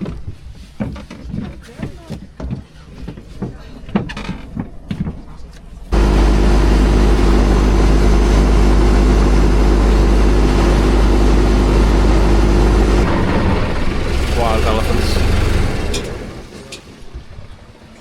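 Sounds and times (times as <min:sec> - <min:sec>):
vehicle engine deep rumble: 0:03.2 - 0:17.7.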